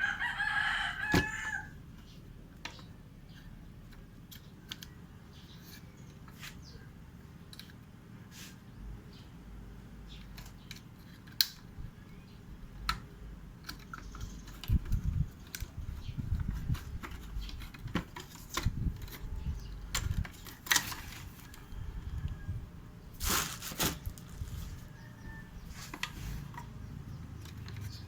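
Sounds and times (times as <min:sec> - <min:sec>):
hands handling plastic parts: 0:13.6 - 0:21.7, 0:23.2 - 0:28.0
plastic parts clattering: 0:16.4 - 0:21.7, 0:23.2 - 0:24.8.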